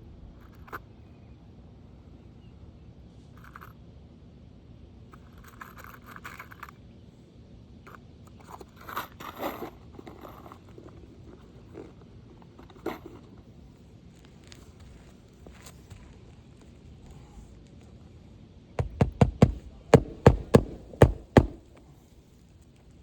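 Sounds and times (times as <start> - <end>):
sharp knocks: 18.8 - 21.8
scraping on roof shingles: 18.8 - 21.9.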